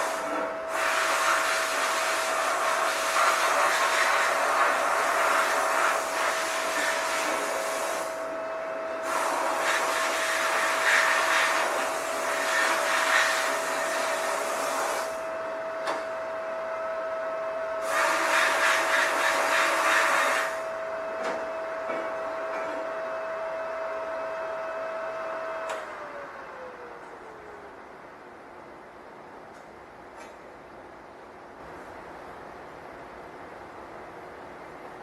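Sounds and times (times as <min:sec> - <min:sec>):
sandblaster air blast hissing: 0:09.0 - 0:15.2, 0:17.8 - 0:20.6.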